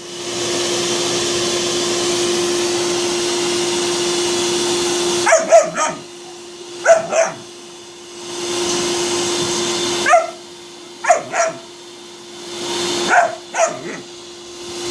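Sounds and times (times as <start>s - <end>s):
vacuum cleaner humming: 0.0s - 14.9s
dog barking: 5.2s - 7.5s, 10.0s - 10.4s, 11.0s - 11.7s, 13.0s - 14.1s.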